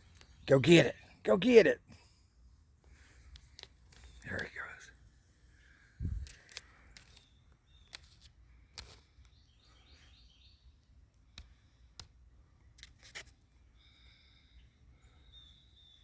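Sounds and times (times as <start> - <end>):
faint bird chirps: 4.0 - 6.0, 6.8 - 10.9, 13.7 - 16.0
light clicks: 6.2 - 9.4.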